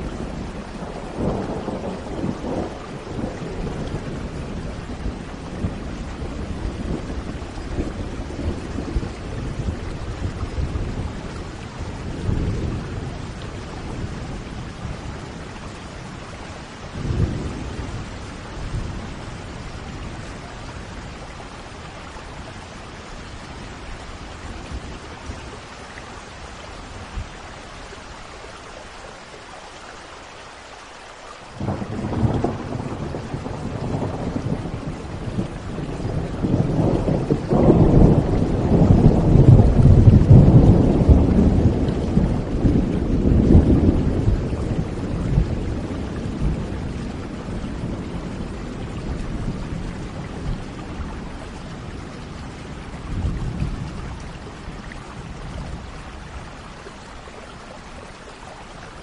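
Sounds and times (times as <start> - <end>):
rolling thunder: 0.0 - 21.7, 31.6 - 56.5
steady rain: 0.0 - 59.0.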